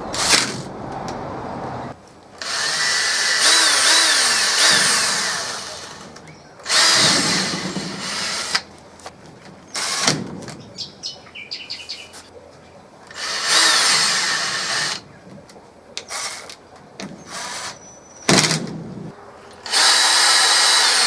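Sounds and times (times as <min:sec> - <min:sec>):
power drill driving screws: 0:00.1 - 0:00.6, 0:02.4 - 0:08.7, 0:09.7 - 0:10.2, 0:13.1 - 0:15.0, 0:17.2 - 0:17.8, 0:19.6 - 0:21.0.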